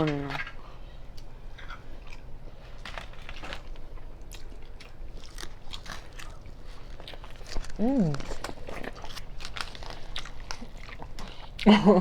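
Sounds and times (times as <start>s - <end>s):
corn being bitten and chewed: 2.8s - 11.6s.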